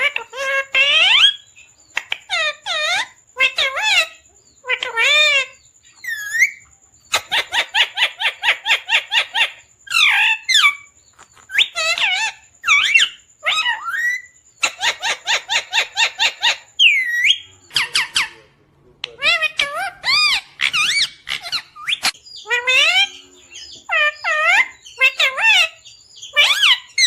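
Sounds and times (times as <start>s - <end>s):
parrot chirping: 0.0s - 27.0s
parrot whistles and squawks: 2.0s - 18.4s, 19.0s - 23.2s.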